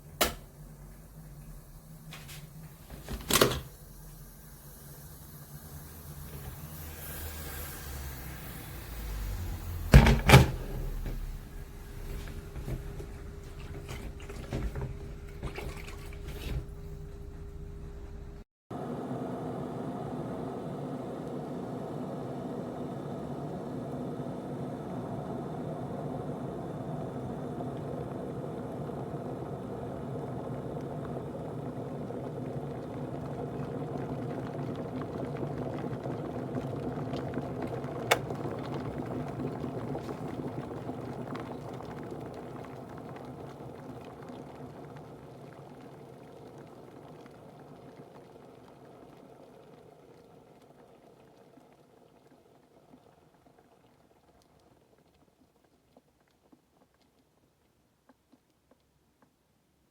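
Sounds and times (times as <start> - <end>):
electric kettle boiling water: 0.0 - 59.4
kettle switch click: 0.1 - 0.5, 38.1 - 38.4.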